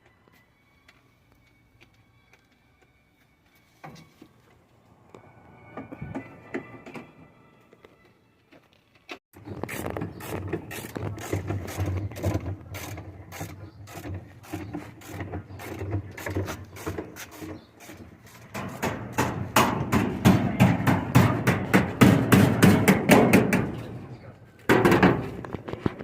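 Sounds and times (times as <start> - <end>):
hand tools clicking and scraping: 8.6 - 24.0.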